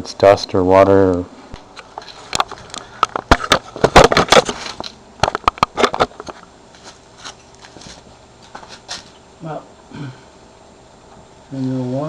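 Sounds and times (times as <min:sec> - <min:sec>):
sharp clicks and knocks: 0:01.6 - 0:06.4.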